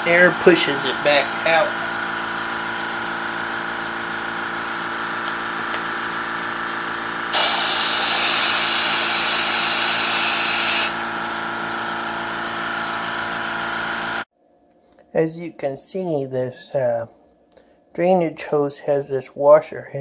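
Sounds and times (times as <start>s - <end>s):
steady mechanical hum: 0.0s - 18.0s
compressed air hissing from hose: 7.3s - 11.0s.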